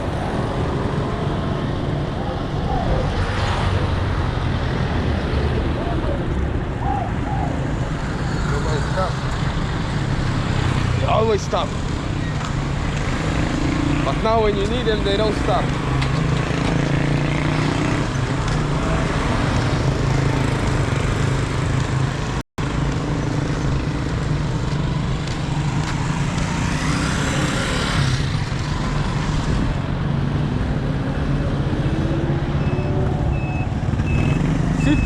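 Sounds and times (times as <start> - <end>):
vehicles passing close by: 0.0 - 35.0.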